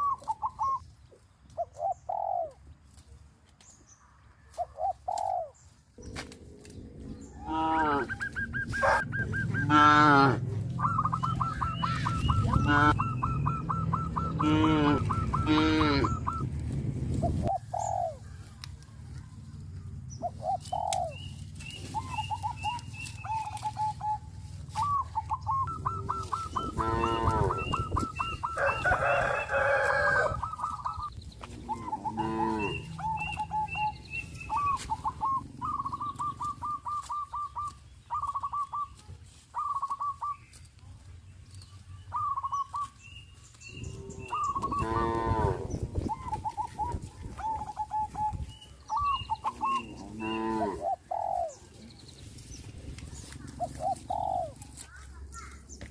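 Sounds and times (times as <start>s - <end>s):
poultry chirping and clucking: 0.0s - 55.9s
cow mooing: 7.3s - 8.2s, 9.6s - 10.5s, 12.5s - 13.0s, 14.4s - 16.2s, 26.6s - 27.7s, 31.6s - 33.0s, 43.9s - 45.8s, 49.7s - 50.8s
rooster crowing: 28.4s - 30.5s.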